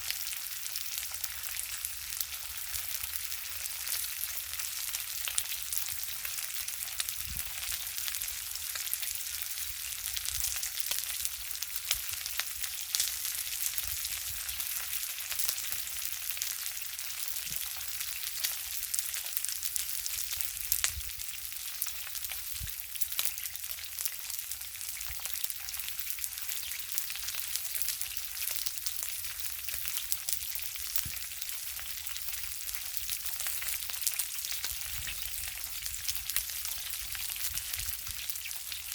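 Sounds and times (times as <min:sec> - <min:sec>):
food sizzling on a grill: 0:00.0 - 0:38.9
wood fire crackling and popping: 0:00.9 - 0:24.3, 0:24.9 - 0:38.9.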